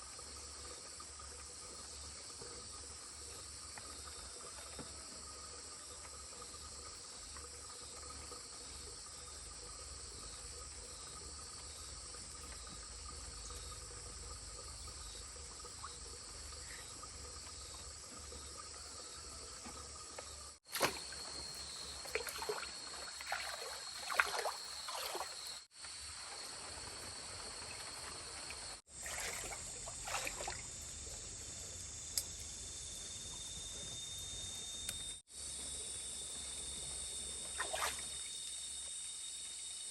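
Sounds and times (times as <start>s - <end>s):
trickling water: 0.0s - 25.7s, 28.5s - 31.2s
high-pitched insect drone: 20.8s - 28.8s.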